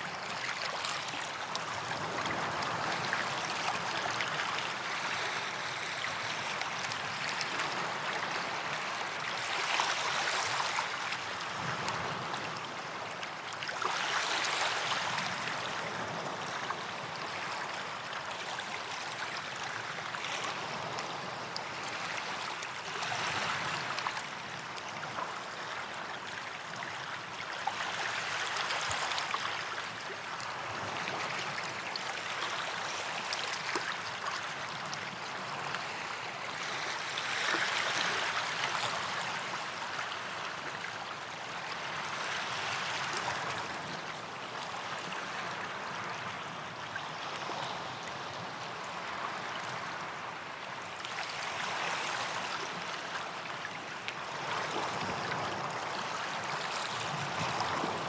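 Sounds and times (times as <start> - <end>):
small waves breaking on sand: 0.0 - 58.0.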